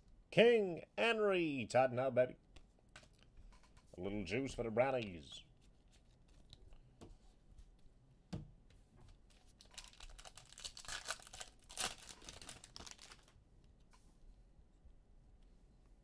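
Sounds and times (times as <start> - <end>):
plastic packaging crinkling: 9.3 - 13.4.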